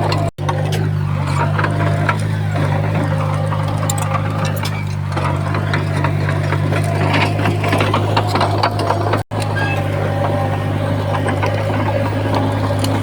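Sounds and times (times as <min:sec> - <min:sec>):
diesel engine drone: 0:00.0 - 0:13.0
metallic clanking and rattling: 0:00.0 - 0:13.0.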